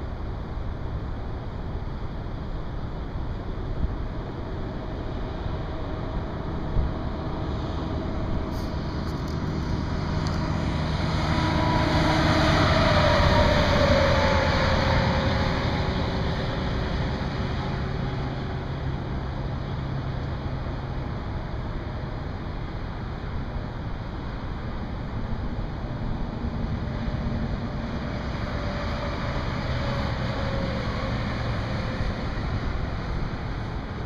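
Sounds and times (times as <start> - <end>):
low traffic hum: 0.0 - 34.0
vehicle passing by: 5.0 - 22.7, 25.0 - 34.0.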